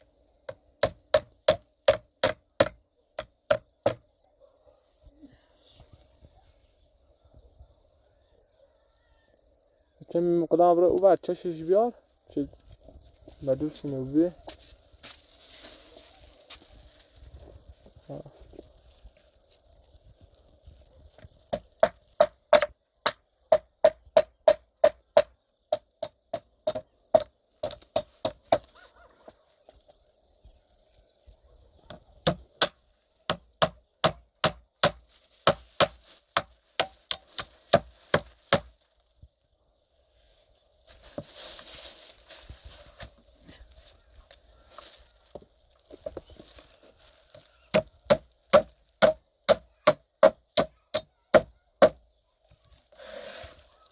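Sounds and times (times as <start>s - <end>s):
rustling scrape: 14.5s - 19.1s, 52.9s - 53.9s.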